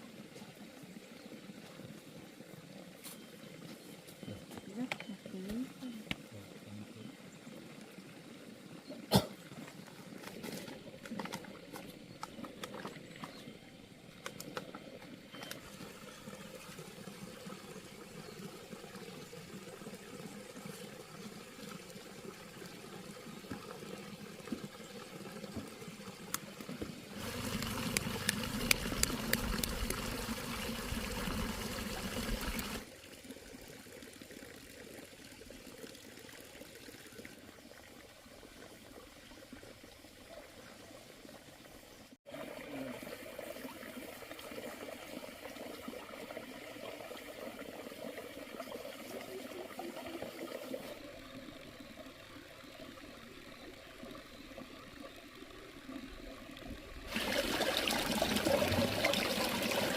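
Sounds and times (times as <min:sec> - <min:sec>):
water trickling: 0:00.1 - 0:59.9
small clicks: 0:27.2 - 0:30.0.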